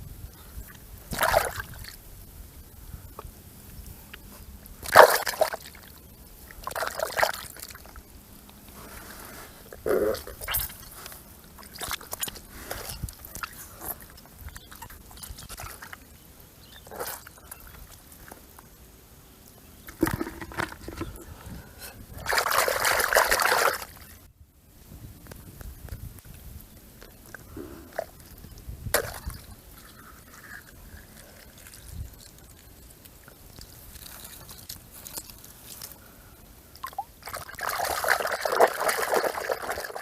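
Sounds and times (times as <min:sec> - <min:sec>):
water splashing and sloshing: 0:01.1 - 0:02.0, 0:04.8 - 0:08.0, 0:08.9 - 0:16.1, 0:19.9 - 0:21.3, 0:22.1 - 0:24.3, 0:27.9 - 0:35.9, 0:36.8 - 0:40.0
small wet clicks: 0:10.2 - 0:16.1, 0:25.3 - 0:40.0.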